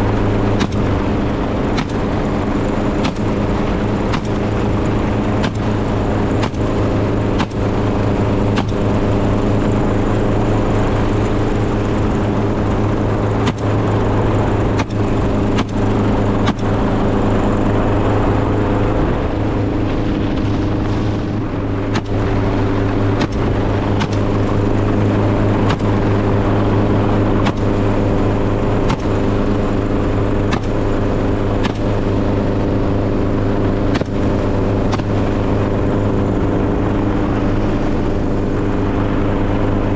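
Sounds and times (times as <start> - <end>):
engine running steadily: 0.0 - 39.9
sharp knocks or clicks: 1.8 - 2.2, 3.0 - 3.4, 5.4 - 5.7, 6.4 - 6.7, 13.4 - 13.7, 21.9 - 22.2, 23.2 - 24.3, 30.5 - 30.8, 31.6 - 31.9.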